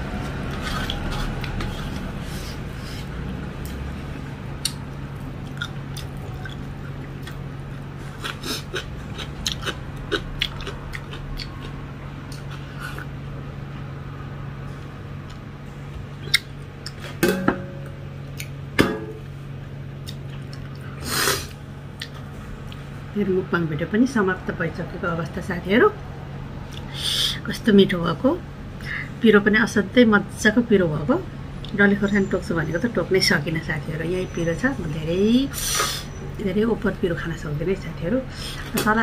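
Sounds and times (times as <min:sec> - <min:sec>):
steady low hum: 0:00.0 - 0:39.0
person chewing: 0:00.2 - 0:03.8, 0:04.6 - 0:13.1.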